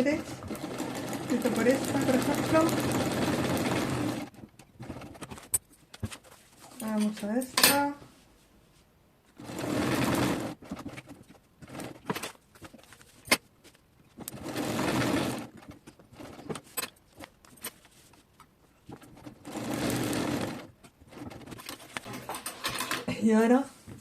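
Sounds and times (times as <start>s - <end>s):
sewing machine stitching: 0.0s - 5.4s, 9.4s - 12.2s, 14.2s - 16.8s, 19.0s - 23.0s.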